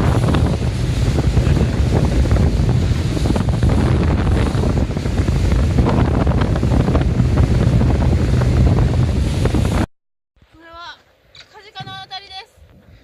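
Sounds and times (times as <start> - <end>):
boat engine humming: 0.0 - 9.9
water noise: 0.0 - 9.9
wind buffeting microphone: 0.0 - 9.9.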